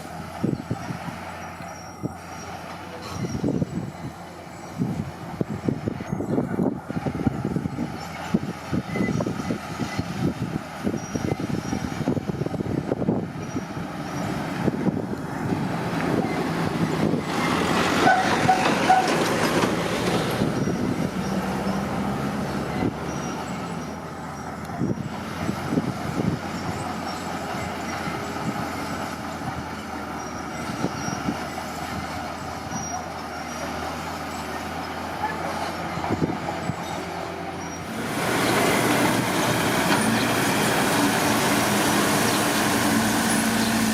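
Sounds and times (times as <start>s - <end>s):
diesel engine under load: 0.0s - 43.9s
steel tracks clattering: 17.2s - 20.7s.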